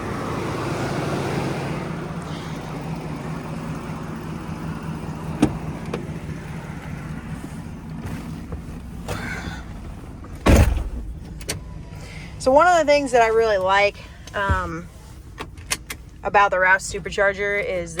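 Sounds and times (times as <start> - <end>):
road noise: 0.0 - 18.0
truck engine running: 0.0 - 18.0.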